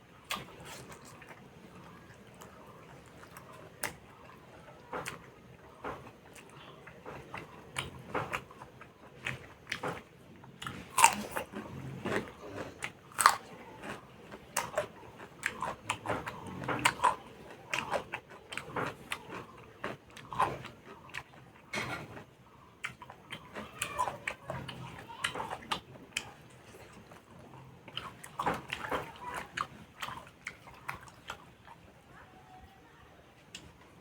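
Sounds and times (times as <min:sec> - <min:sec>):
person chewing and biting food: 0:05.0 - 0:21.4.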